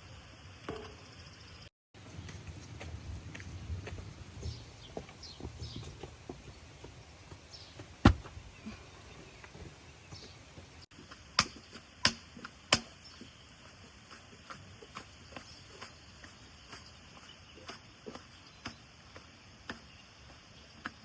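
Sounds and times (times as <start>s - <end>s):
sharp knocks: 8.0s - 8.4s.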